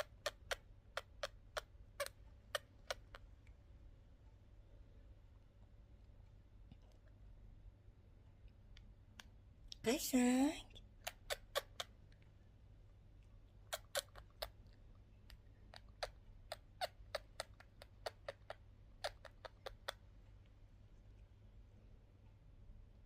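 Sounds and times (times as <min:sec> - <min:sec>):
budgerigar beaks clicking: 0:00.0 - 0:03.4, 0:11.0 - 0:12.0, 0:13.7 - 0:20.1
low steady hum: 0:00.0 - 0:23.0.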